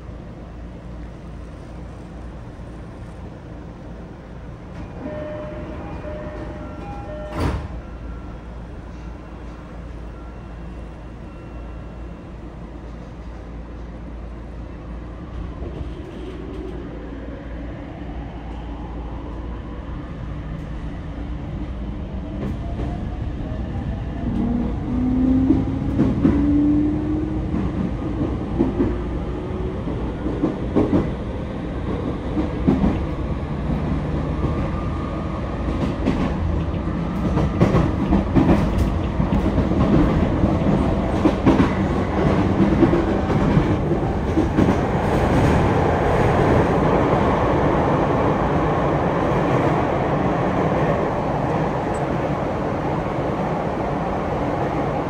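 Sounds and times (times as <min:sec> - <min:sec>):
rail-joint clicks: 0:05.8 - 0:07.9, 0:35.7 - 0:45.6.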